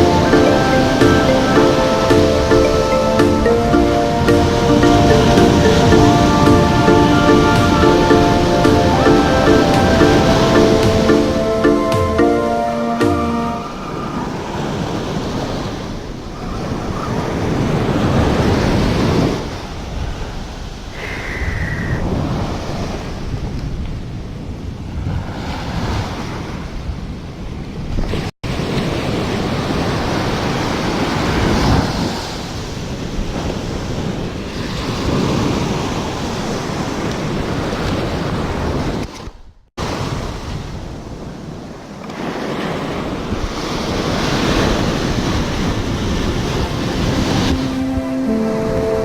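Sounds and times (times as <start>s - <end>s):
ocean surf breaking: 0.0s - 23.3s, 39.8s - 49.0s
wind buffeting microphone: 39.8s - 48.8s.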